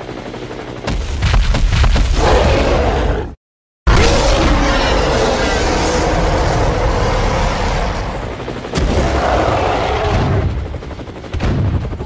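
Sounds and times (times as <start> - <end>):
energy weapon blasting and rumbling: 3.9 - 8.2.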